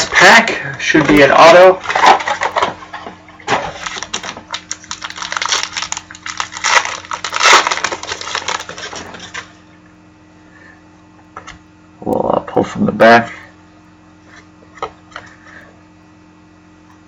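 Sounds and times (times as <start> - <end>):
wrapper crinkling and tearing: 0.0 - 2.8, 3.5 - 9.5.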